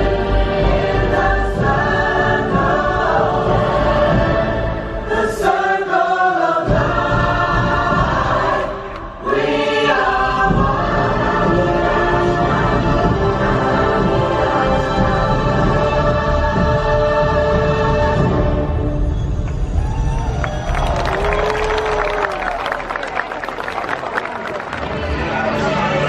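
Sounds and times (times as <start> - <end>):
choir singing held notes: 0.0 - 19.4.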